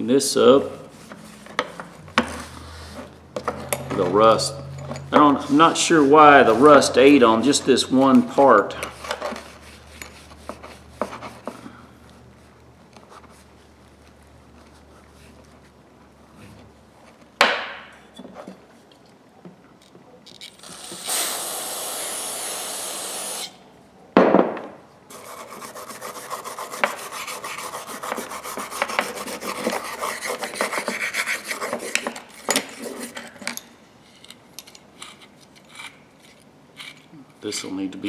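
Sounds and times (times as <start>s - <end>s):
steady hiss: 20.7s - 23.6s.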